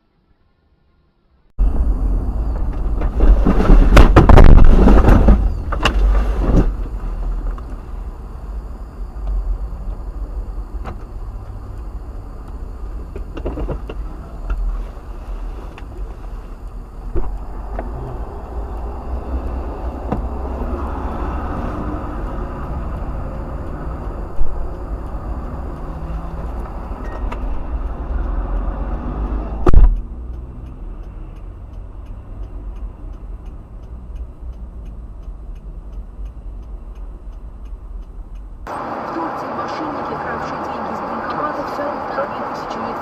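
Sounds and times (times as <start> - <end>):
car road and engine noise: 0.0 - 43.0
steady low rumble: 1.6 - 43.0
loud crash with clatter: 3.1 - 5.4.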